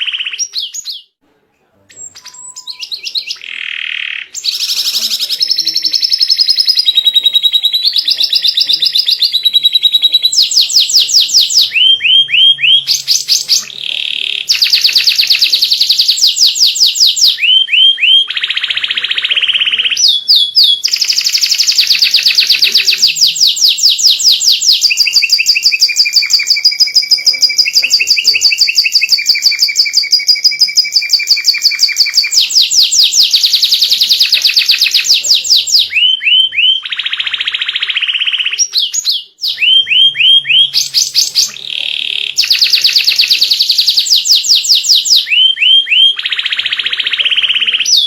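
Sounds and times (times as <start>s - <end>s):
canary singing trills: 0.0s - 1.2s, 1.9s - 48.0s.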